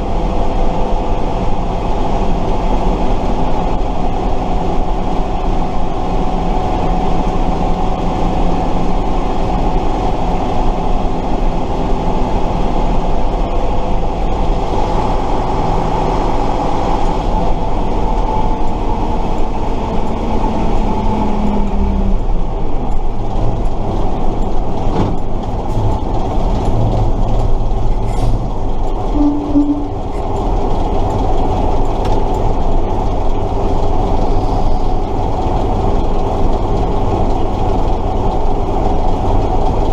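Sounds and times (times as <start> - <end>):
drivetrain whine: 0.0 - 39.9
truck diesel engine running: 0.0 - 39.9
drivetrain rattle: 22.3 - 39.9.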